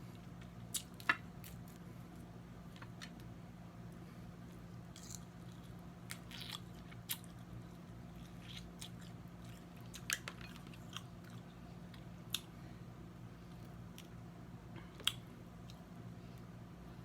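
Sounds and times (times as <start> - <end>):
steady low hum: 0.0 - 17.0
chewing: 8.1 - 12.5.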